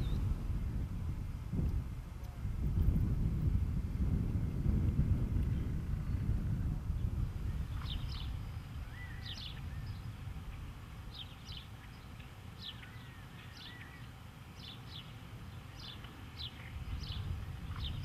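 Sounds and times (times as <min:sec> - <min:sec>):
thin whistled bird notes: 0:00.0 - 0:00.3, 0:07.5 - 0:10.1, 0:11.1 - 0:18.0
small birds chirping: 0:00.0 - 0:00.4, 0:05.4 - 0:18.0
steady low rumble: 0:00.0 - 0:15.1, 0:15.7 - 0:18.0.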